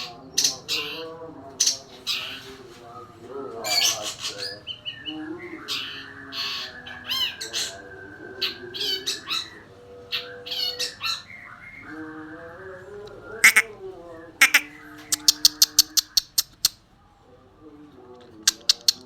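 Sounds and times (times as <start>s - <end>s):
bird singing harsh squawky notes: 13.4s - 13.7s, 14.4s - 16.7s.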